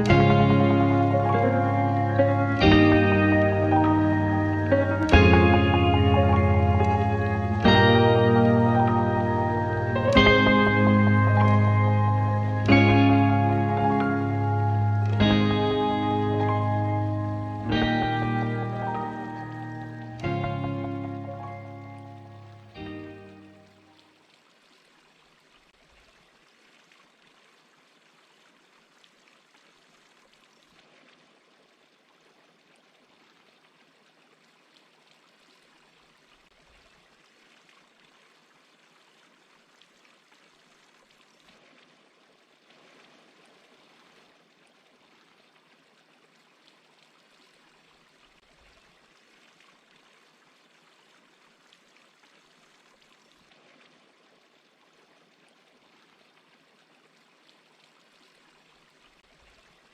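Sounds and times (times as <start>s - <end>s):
small waterfall rushing: 0.0s - 16.5s.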